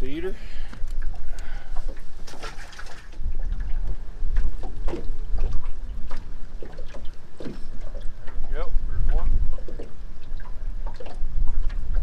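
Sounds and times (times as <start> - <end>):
wind rumbling on microphone: 0.0 - 12.0
water lapping against boat: 0.1 - 12.0.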